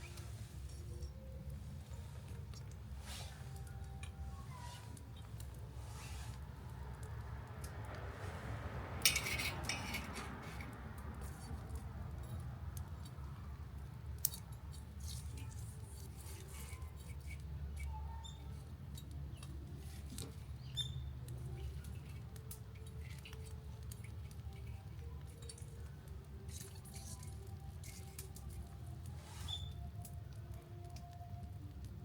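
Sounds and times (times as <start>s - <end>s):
campfire crackling: 0.0s - 32.0s.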